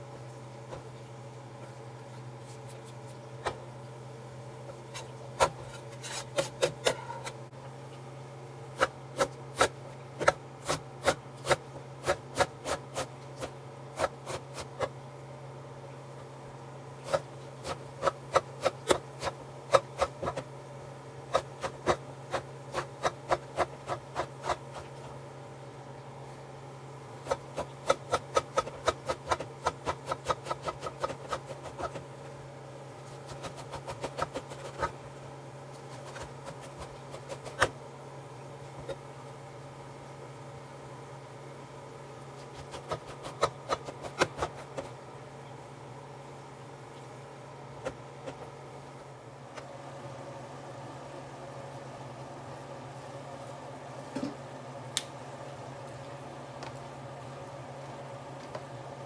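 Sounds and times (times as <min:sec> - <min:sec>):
knife chopping on cutting board: 0:21.3 - 0:24.8, 0:27.2 - 0:32.0, 0:42.5 - 0:44.9.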